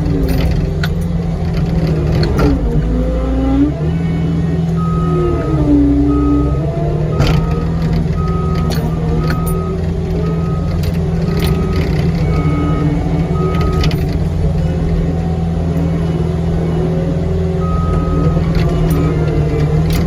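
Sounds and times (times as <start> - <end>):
diesel engine running: 0.0 - 20.0
backup alarm beeping: 4.0 - 15.9, 17.6 - 20.0.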